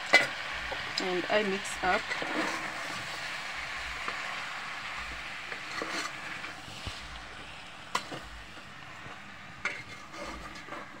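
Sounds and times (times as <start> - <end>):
food sizzling in a pot: 0.0 - 11.0
spoon scraping a pot: 1.9 - 3.0, 5.5 - 6.3, 9.6 - 11.0.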